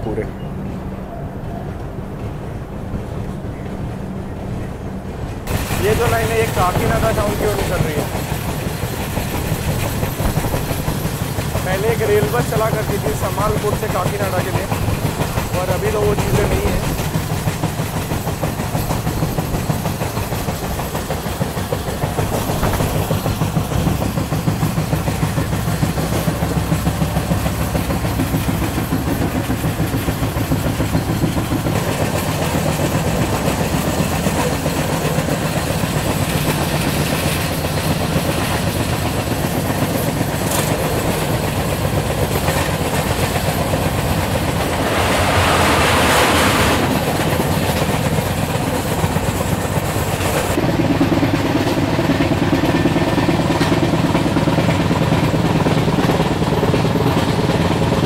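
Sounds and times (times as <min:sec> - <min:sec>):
train wheels rumbling on rails: 0:00.0 - 0:58.0
hissing rush: 0:05.4 - 0:50.6.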